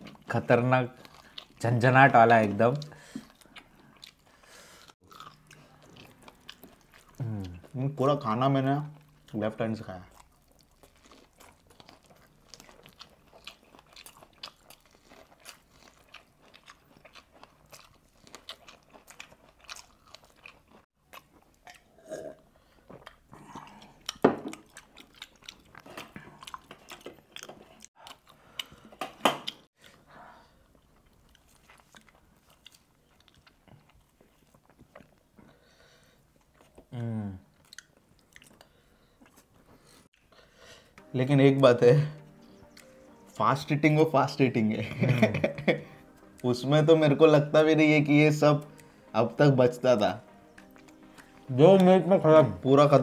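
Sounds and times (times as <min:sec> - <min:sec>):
chicken being chewed: 0:10.1 - 0:21.9, 0:50.2 - 0:51.5.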